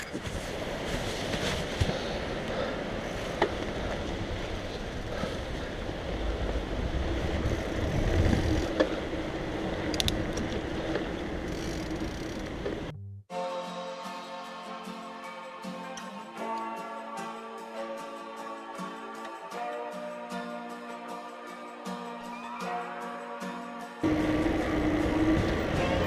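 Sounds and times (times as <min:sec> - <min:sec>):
mountain bike tyre rumble: 0:00.0 - 0:12.9, 0:24.0 - 0:26.0
bike clicks and rattles: 0:07.3 - 0:12.9.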